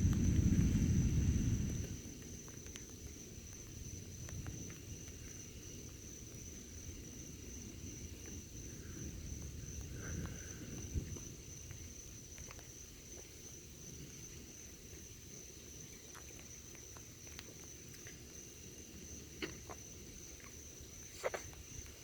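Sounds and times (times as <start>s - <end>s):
thunder rumble: 0.0s - 2.6s, 6.5s - 12.4s
faint low rumble: 0.0s - 15.2s
crickets chirping: 0.0s - 22.0s.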